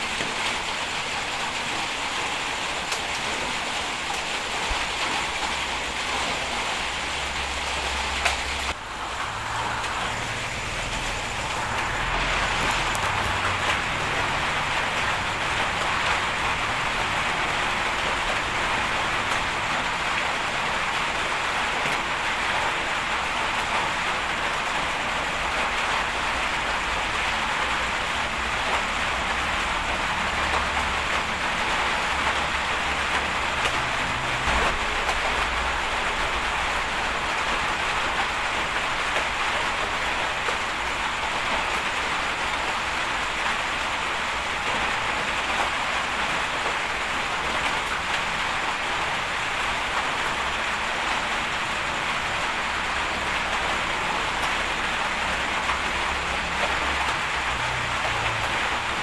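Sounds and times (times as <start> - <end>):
bulldozer engine rumbling: 7.6 - 17.8.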